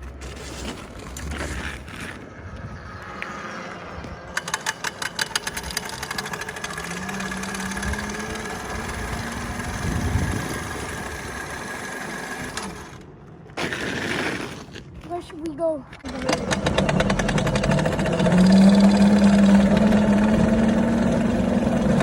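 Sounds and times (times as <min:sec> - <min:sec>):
dirt bike motor whining: 0:00.9 - 0:15.1, 0:15.9 - 0:22.0
rapid clicking: 0:04.3 - 0:13.0.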